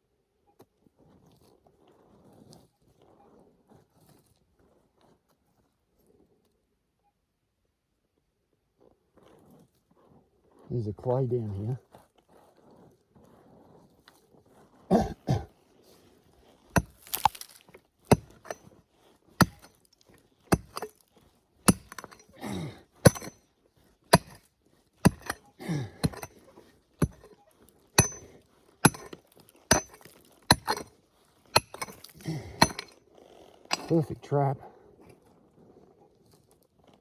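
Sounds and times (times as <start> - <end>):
pick striking clay ground: 16.7 - 18.7, 19.3 - 23.4, 24.1 - 27.4, 28.0 - 33.0, 33.7 - 34.2.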